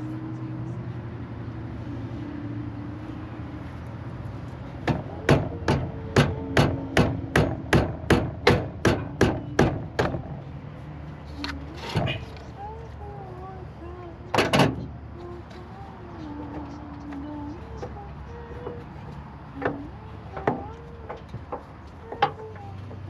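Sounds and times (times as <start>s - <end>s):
hammer strikes: 4.8s - 10.3s.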